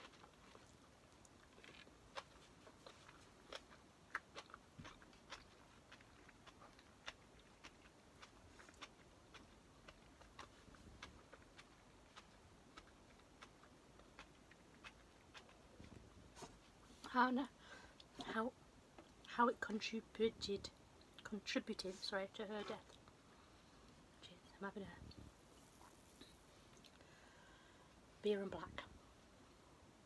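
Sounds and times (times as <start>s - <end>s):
faint chewing: 0.0s - 17.1s, 20.6s - 24.0s, 24.9s - 28.0s.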